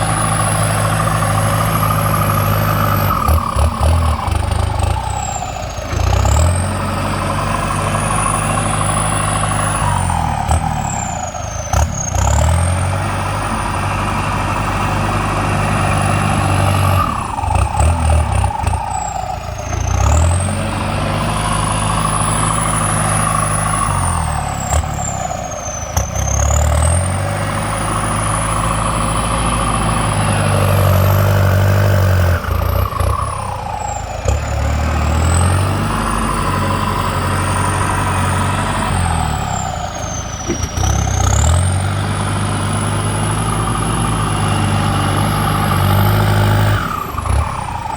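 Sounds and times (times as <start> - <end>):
diesel tractor engine under load: 0.0 - 47.9
short clunks: 40.4 - 41.1.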